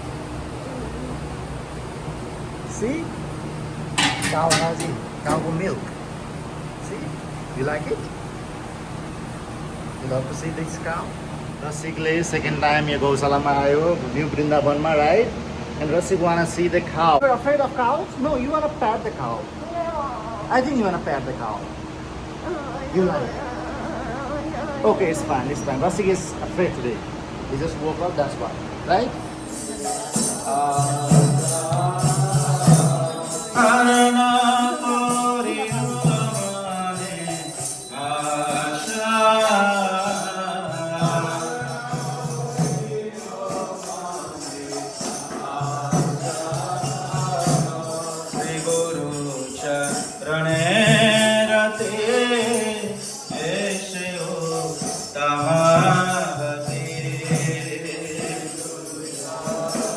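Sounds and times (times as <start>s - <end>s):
jingling hand percussion: 2.7s - 6.1s, 28.9s - 59.9s
person singing a chant: 29.4s - 59.9s.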